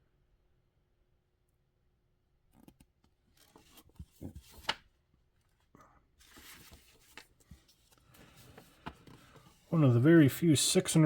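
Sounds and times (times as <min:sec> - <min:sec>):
paper rustling and pages turning: 0:02.6 - 0:09.8.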